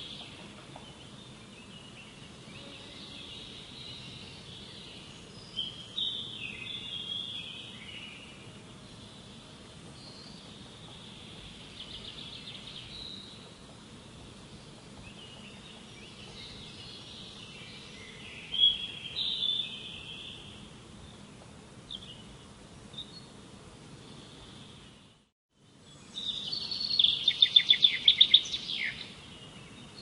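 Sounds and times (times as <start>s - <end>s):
wild birds singing and calling: 0.0s - 23.4s, 25.8s - 30.0s
steady background hiss: 0.0s - 30.0s
bird trill: 26.2s - 29.1s.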